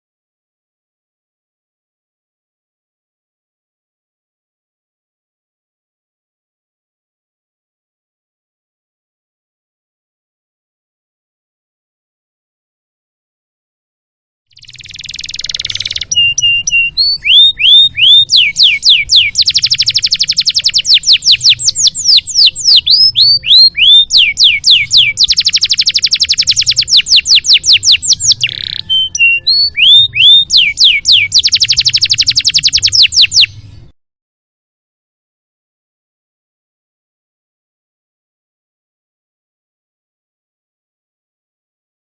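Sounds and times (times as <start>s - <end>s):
canary singing trills and whistles: 14.5s - 33.9s.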